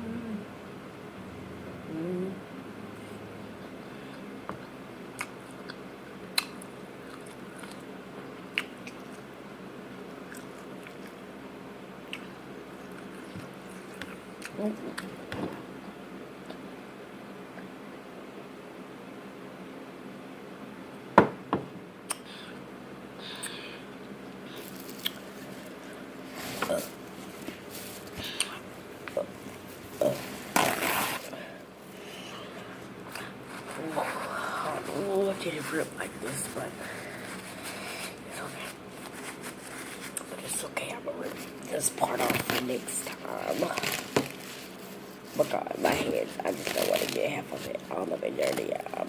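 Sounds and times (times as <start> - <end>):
steady low hum: 0.0 - 49.0
person chewing food: 4.0 - 9.3, 10.2 - 11.3, 12.0 - 15.2, 23.3 - 34.2
chewing clicks and smacks: 4.6 - 7.9
food rustling: 24.4 - 49.0.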